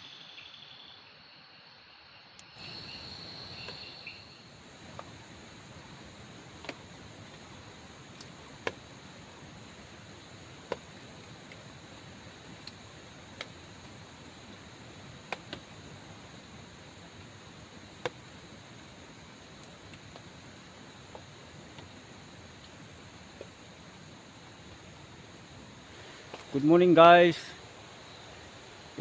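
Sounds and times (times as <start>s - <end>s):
insects droning: 0.0s - 29.0s
low hiss: 0.0s - 29.0s.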